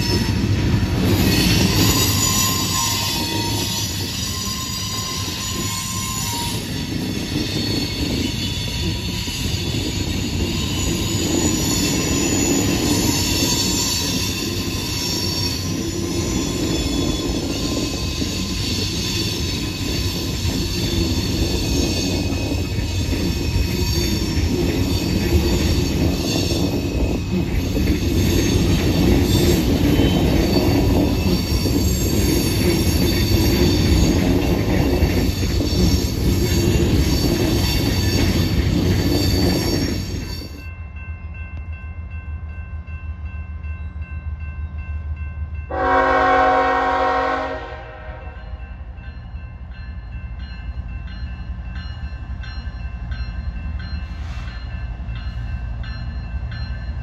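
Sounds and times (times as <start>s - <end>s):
train wheels squealing: 0.0s - 41.1s, 48.3s - 57.0s
rumble and clatter of train cars: 0.0s - 57.0s.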